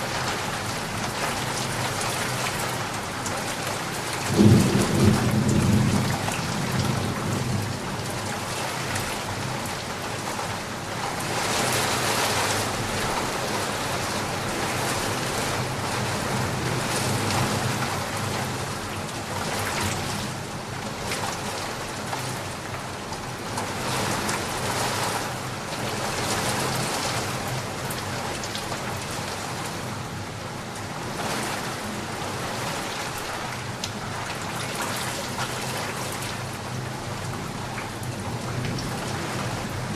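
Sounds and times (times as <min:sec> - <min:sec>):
steady rain: 0:00.0 - 0:39.9
thunder rumble: 0:04.3 - 0:08.0.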